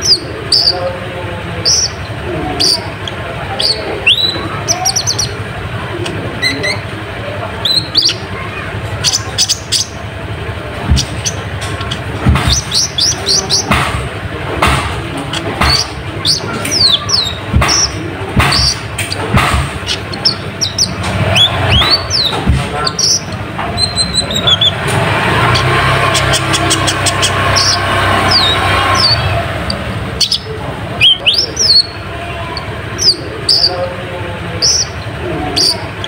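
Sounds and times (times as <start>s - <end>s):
sunbird chirping and whistling: 0.0s - 0.8s, 1.6s - 5.4s, 6.4s - 6.9s, 7.6s - 8.4s, 9.0s - 10.0s, 10.9s - 13.8s, 15.3s - 24.9s, 25.5s - 29.4s, 30.2s - 32.0s, 32.6s - 33.8s, 34.6s - 36.0s.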